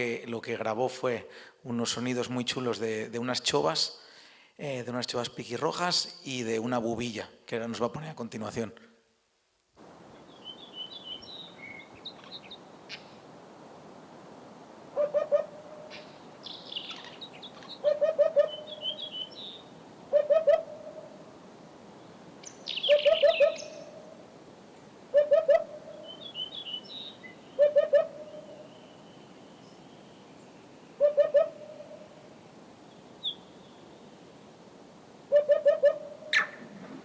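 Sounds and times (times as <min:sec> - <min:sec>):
choughs calling loudly: 0:10.3 - 0:13.2, 0:14.9 - 0:21.2, 0:22.4 - 0:24.1, 0:35.3 - 0:36.7
hoopoe singing: 0:14.9 - 0:21.2, 0:22.4 - 0:24.1, 0:25.1 - 0:28.8, 0:31.0 - 0:32.1, 0:35.3 - 0:36.5.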